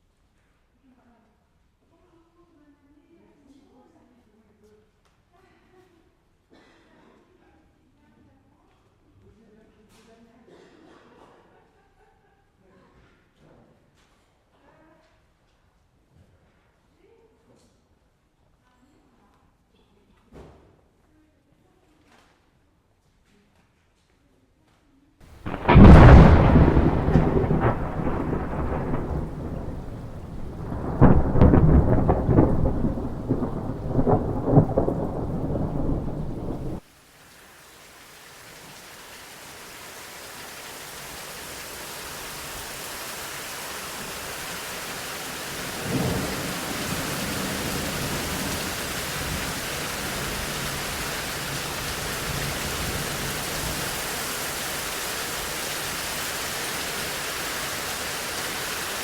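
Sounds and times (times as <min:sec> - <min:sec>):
thunder rumbling: 0:25.3 - 0:36.8, 0:40.4 - 0:59.0
steady rain hiss: 0:25.3 - 0:59.0.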